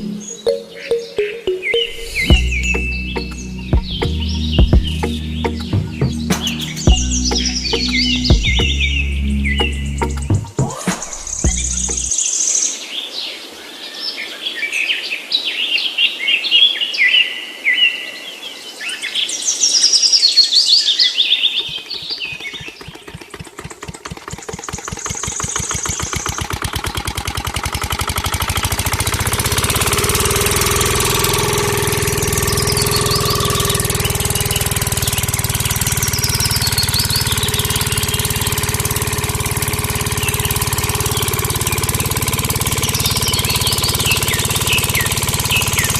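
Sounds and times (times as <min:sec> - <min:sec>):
birds chirping: 0:00.0 - 0:13.4, 0:20.5 - 0:45.9
small engine starting and running: 0:01.9 - 0:12.3, 0:21.1 - 0:45.9.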